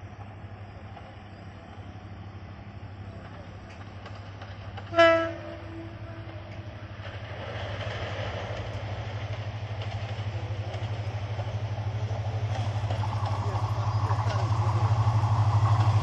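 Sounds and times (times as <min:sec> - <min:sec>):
locomotive engine rumble: 0:00.0 - 0:16.0
train running noise: 0:00.0 - 0:16.0
locomotive horn blast: 0:04.8 - 0:06.5.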